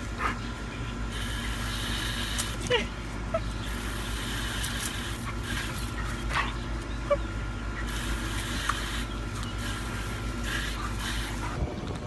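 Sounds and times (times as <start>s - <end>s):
steady low rumble: 0.0s - 12.0s
dog whimpering: 6.0s - 7.9s.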